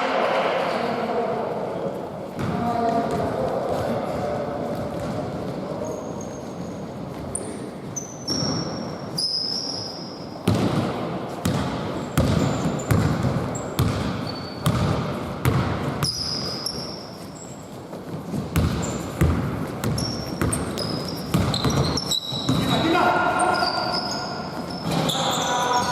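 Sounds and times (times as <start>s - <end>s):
basketball bouncing on court: 2.4s - 3.5s, 10.4s - 16.9s, 18.3s - 23.0s
sneakers squeaking on floor: 4.6s - 25.9s.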